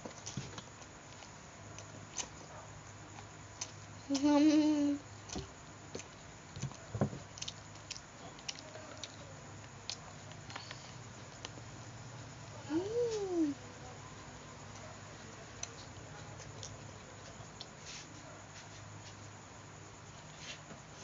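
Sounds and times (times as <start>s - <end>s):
wet chewing sounds: 0.0s - 4.4s, 5.2s - 11.6s.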